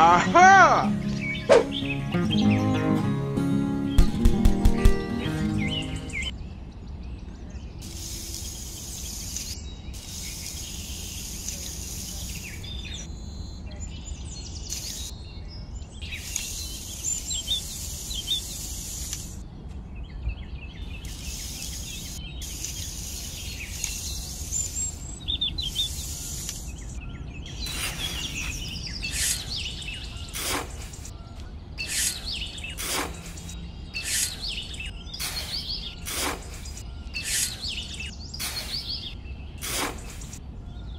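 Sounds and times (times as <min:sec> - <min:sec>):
birds chirping: 0:00.0 - 0:40.9
trowel scraping damp sand: 0:27.6 - 0:31.1, 0:31.8 - 0:40.4.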